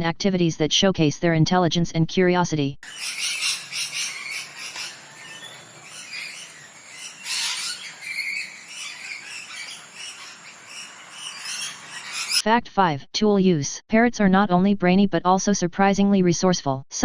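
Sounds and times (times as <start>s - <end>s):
bird calls and squawks: 2.8s - 12.4s.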